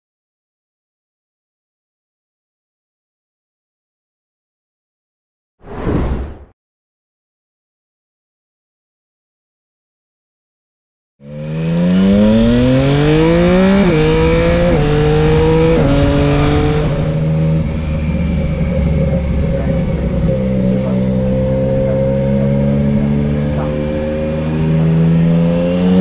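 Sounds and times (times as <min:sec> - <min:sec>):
motorcycle engine accelerating: 0:11.2 - 0:26.0.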